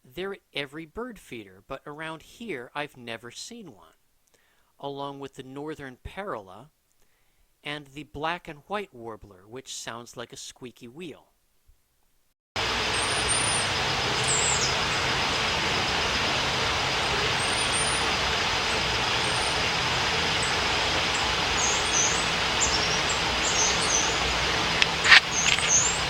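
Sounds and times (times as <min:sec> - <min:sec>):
background hiss: 0:00.0 - 0:26.0
warbler singing high thin notes: 0:12.6 - 0:26.0
sharp clicks: 0:24.8 - 0:26.0.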